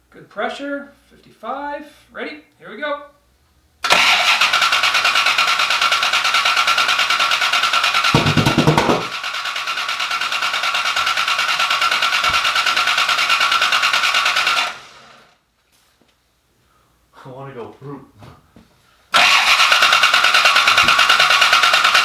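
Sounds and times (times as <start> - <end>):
starter motor cranking engine: 3.8 - 15.3, 19.1 - 22.0.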